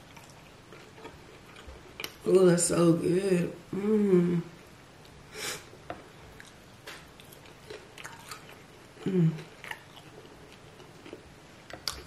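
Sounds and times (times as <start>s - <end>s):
person chewing with wet smacks: 0.0s - 2.2s, 5.9s - 12.0s.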